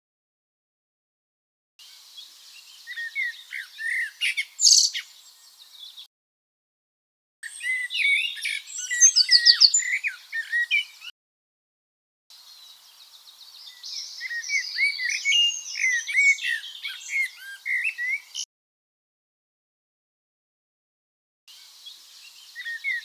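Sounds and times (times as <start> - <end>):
blackbird alarm call: 2.9 - 5.2, 7.4 - 11.1, 13.7 - 18.4.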